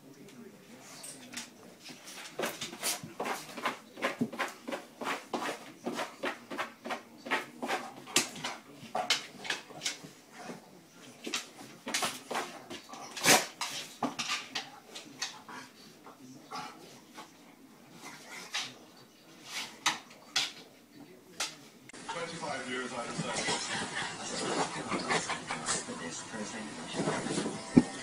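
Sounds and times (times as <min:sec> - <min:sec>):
dog scuffling on mat: 0:26.8 - 0:28.0.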